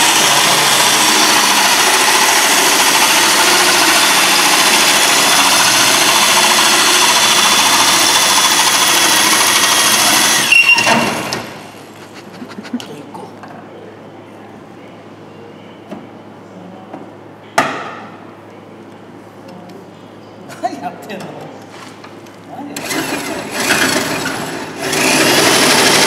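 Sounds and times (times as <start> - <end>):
loud motor running: 0.0 - 12.8, 22.8 - 26.0.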